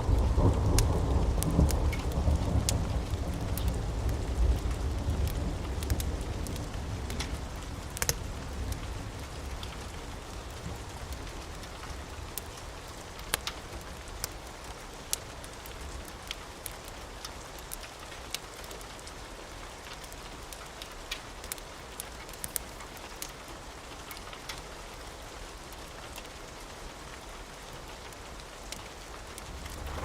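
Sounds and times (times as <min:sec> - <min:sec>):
thunder rumble: 0:00.0 - 0:10.9, 0:29.5 - 0:30.0
rain pattering: 0:00.0 - 0:30.0.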